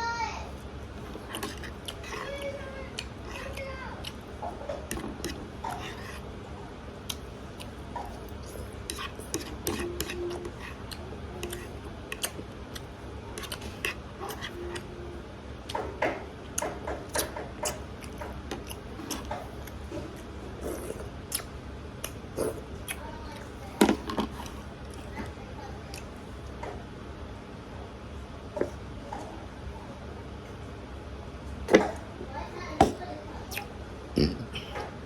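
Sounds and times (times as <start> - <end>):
chewing and slurping: 0.6 - 6.3, 7.0 - 14.9, 15.6 - 26.4.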